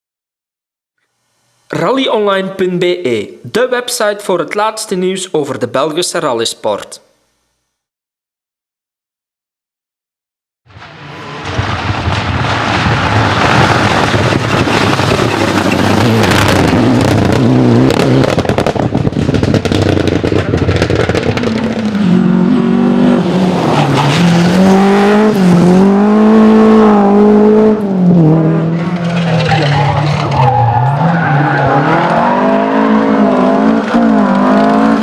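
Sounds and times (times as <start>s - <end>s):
rally car engines at high revs: 10.8s - 35.0s.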